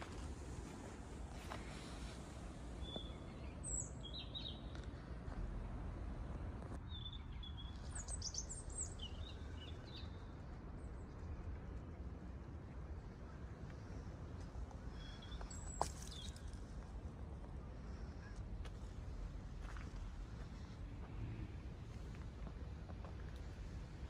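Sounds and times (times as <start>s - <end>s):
low outdoor rumble: 0.0s - 24.0s
small birds chirping: 2.8s - 4.9s.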